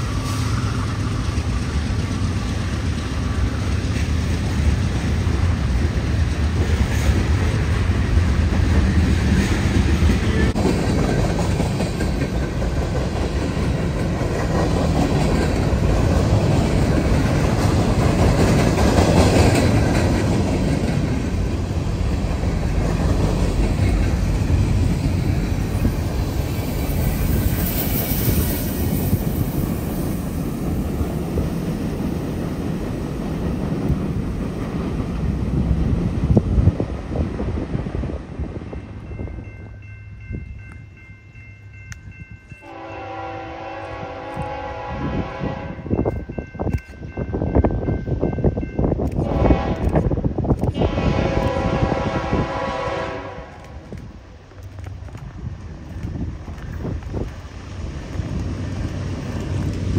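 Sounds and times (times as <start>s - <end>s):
diesel locomotive rumble: 0.0s - 59.9s
freight train wheels rolling: 0.0s - 59.9s
wheels clacking over rail joints: 0.8s - 27.8s.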